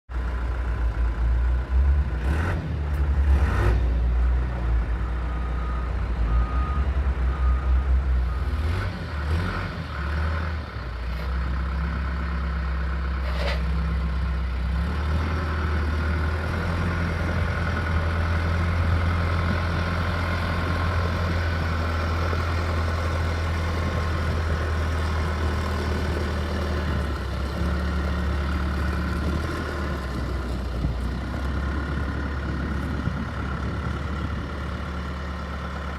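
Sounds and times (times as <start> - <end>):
diesel engine running: 0.1 - 35.9
reversing alarm beeps: 5.0 - 8.8.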